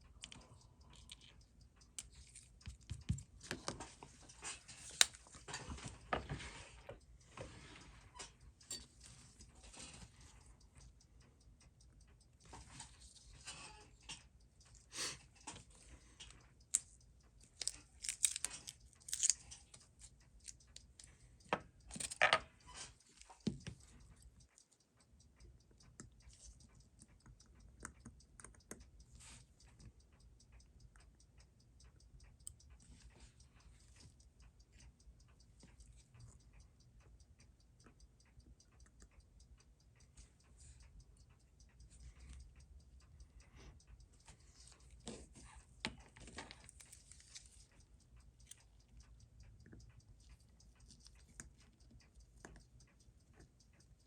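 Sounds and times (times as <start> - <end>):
mechanical watch ticking: 0.0 - 54.0
tools clicking on metal parts: 16.8 - 19.8, 21.9 - 23.0.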